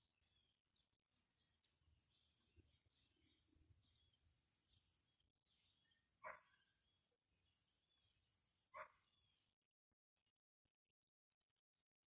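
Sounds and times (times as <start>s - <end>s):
faint high bird chirps: 0.0s - 9.6s.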